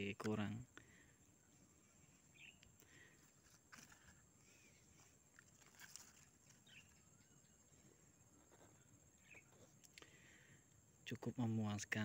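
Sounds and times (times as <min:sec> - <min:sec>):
faint distant bird chirps: 0:00.0 - 0:12.0.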